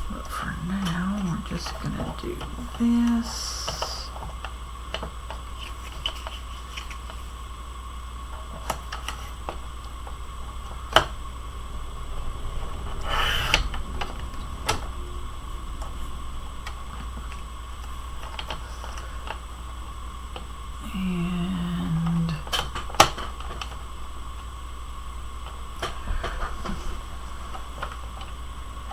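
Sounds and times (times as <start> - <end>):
steady electrical hum: 0.0 - 28.9
paper rustle: 5.6 - 7.3.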